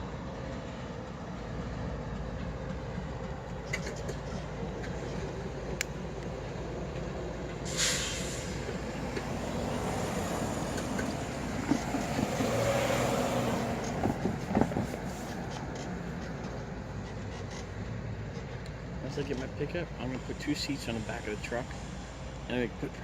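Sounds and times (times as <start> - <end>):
diesel locomotives running: 0.0 - 23.0
hissing air burst: 7.6 - 9.0.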